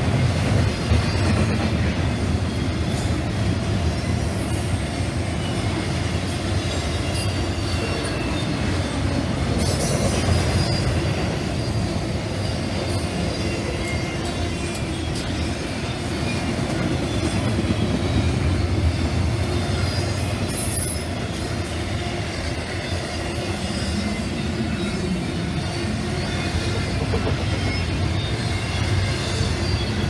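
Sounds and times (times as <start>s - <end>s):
steel wheels rumbling on rail: 0.0s - 30.0s
high wheel squeals: 0.2s - 30.0s.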